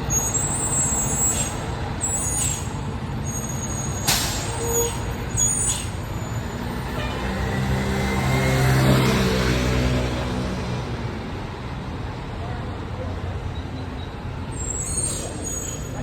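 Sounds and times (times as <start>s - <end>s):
diesel engine rumbling: 0.0s - 16.0s.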